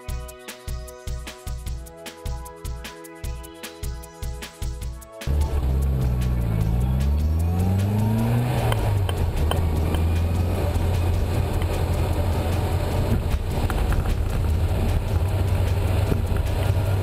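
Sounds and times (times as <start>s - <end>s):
car engine accelerating: 5.3s - 17.0s.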